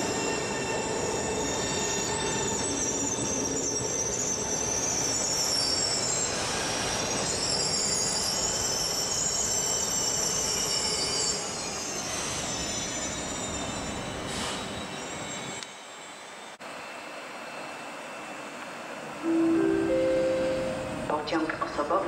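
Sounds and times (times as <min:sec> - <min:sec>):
train wheels squealing: 0:00.0 - 0:19.2
train rumble: 0:18.6 - 0:22.0.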